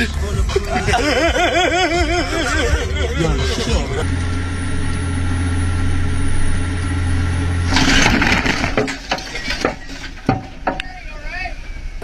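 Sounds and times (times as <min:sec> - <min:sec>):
vehicle engine and road drone: 0:00.0 - 0:12.0
loud crunching noise: 0:04.0 - 0:10.3.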